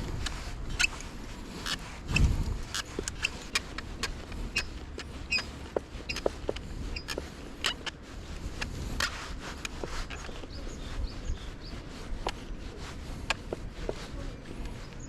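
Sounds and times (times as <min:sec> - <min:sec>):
low outdoor rumble: 0:00.0 - 0:15.0
sharp clicks and knocks: 0:00.2 - 0:08.0.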